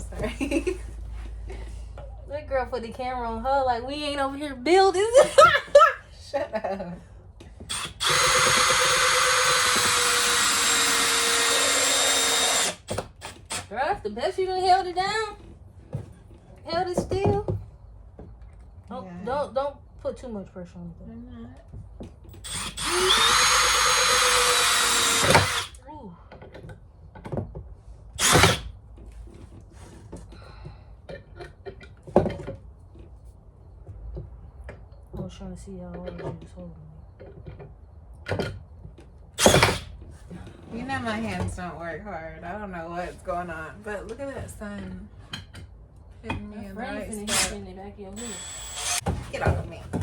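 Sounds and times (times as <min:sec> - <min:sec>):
power drill running: 0:07.7 - 0:13.7, 0:22.4 - 0:25.8, 0:28.2 - 0:28.7, 0:39.4 - 0:39.9, 0:47.1 - 0:47.6, 0:48.2 - 0:49.2.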